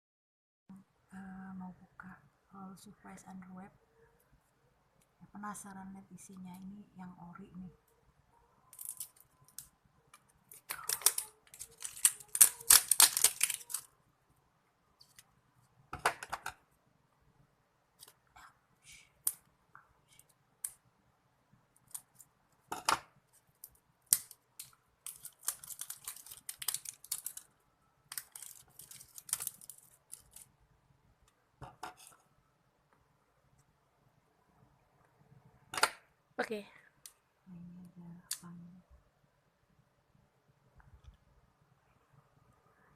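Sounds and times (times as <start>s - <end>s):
plastic packaging crinkling: 8.7s - 9.7s, 10.4s - 14.0s, 23.4s - 30.5s.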